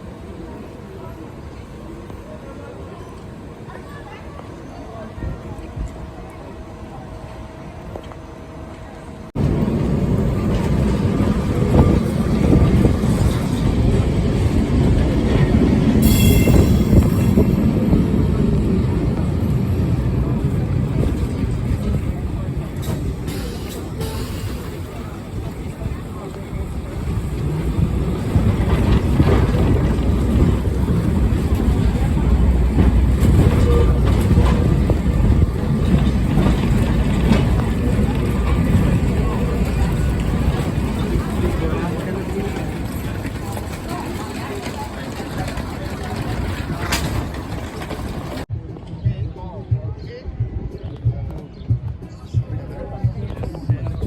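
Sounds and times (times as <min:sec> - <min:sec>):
tram rumbling on rails: 0:00.0 - 0:54.0.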